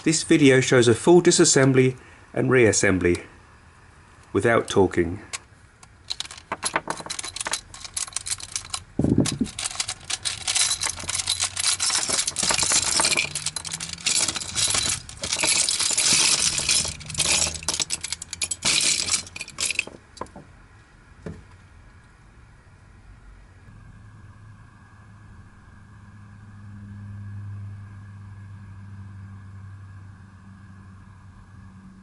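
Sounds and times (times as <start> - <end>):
plastic puzzle pieces clicking: 6.1 - 20.3.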